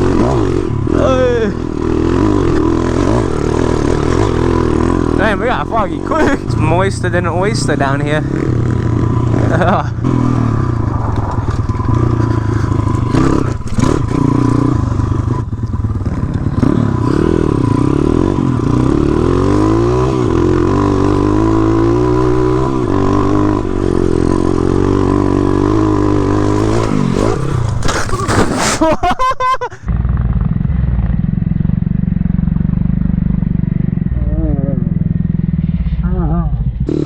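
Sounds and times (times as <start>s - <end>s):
motorbike engine revving: 0.0s - 37.0s
bike knocking over rocks: 26.6s - 28.9s.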